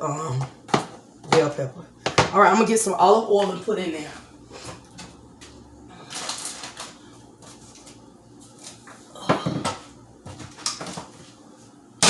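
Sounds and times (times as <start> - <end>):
things knocking on a counter: 0.4 - 2.4, 9.2 - 11.0.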